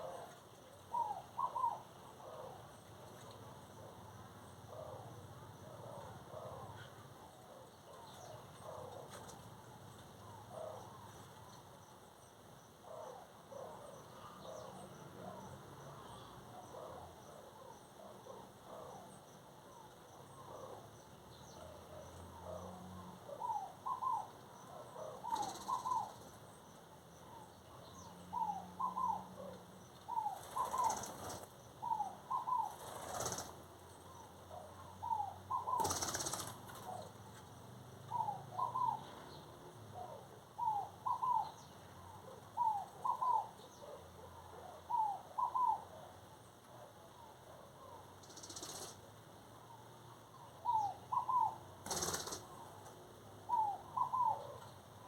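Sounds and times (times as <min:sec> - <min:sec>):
birds calling paired notes: 0:00.0 - 0:02.7, 0:12.9 - 0:46.1, 0:49.8 - 0:54.8.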